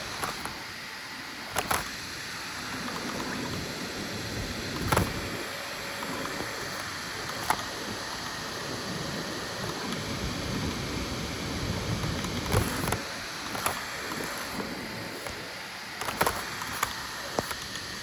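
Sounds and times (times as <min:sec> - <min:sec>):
print head clicks: 0:00.0 - 0:00.6, 0:01.5 - 0:18.0
printer fans and motors whirring: 0:00.0 - 0:18.0.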